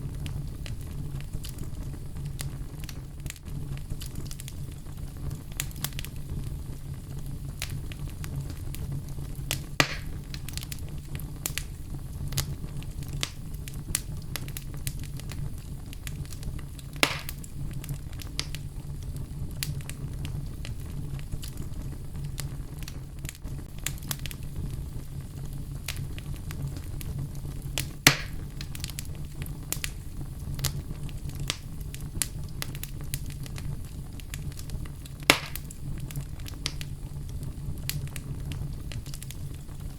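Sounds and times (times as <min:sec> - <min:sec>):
sharp pops of fire: 0:00.0 - 0:39.9
wood fire crackling: 0:00.0 - 0:39.9.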